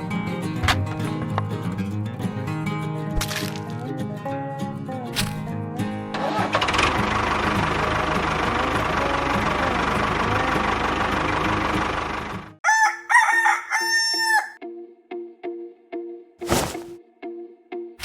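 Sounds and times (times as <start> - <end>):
rooster crowing: 12.6 - 14.6.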